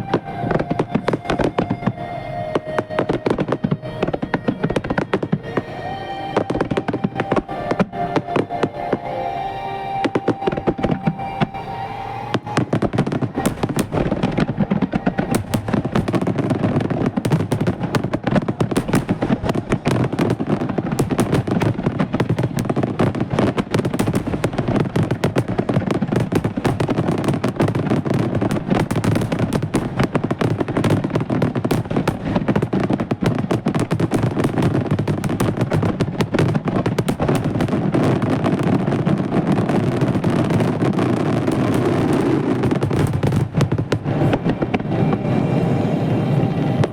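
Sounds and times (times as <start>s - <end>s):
fireworks bursting and crackling: 0.0s - 46.9s.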